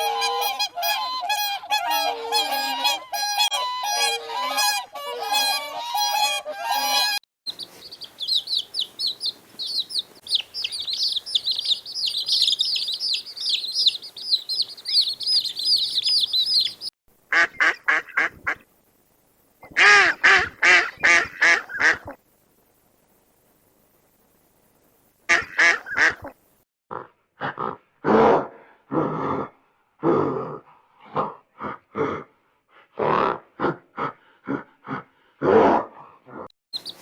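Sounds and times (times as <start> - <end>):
geese honking: 0.0 - 11.8
birds chirping: 7.5 - 18.3, 36.8 - 37.0
loud rapid bird calls: 7.5 - 18.3, 36.8 - 37.0.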